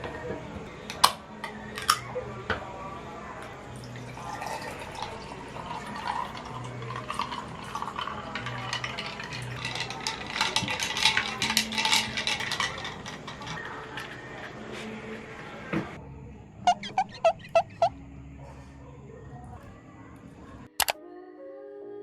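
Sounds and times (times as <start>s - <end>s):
soft background music: 0.0s - 22.0s
liquid splashing and pouring: 3.8s - 15.6s
small clinks: 4.4s - 15.1s.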